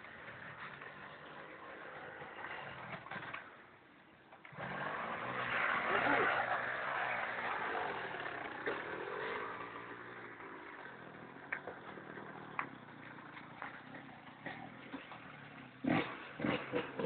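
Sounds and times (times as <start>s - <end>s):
motorcycle engine revving: 4.4s - 17.0s.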